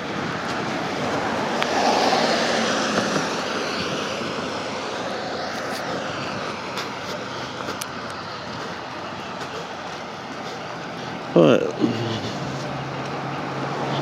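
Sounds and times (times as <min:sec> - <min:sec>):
vehicle passing: 0:00.0 - 0:14.0.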